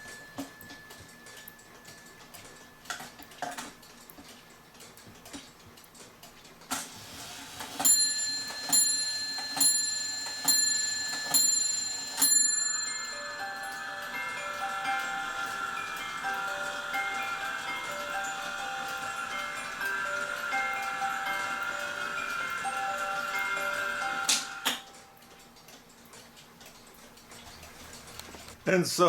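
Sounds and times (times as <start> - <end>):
clock striking bell: 0.0 - 3.8, 7.2 - 25.6
clock music movement tune: 0.0 - 5.3, 7.1 - 27.3
clock mechanism clicks: 0.0 - 28.6.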